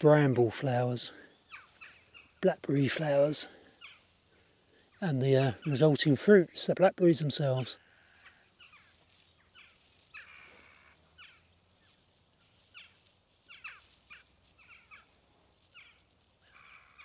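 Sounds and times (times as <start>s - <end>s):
distant jackdaws calling: 1.2s - 2.5s, 3.2s - 6.0s, 7.6s - 17.0s.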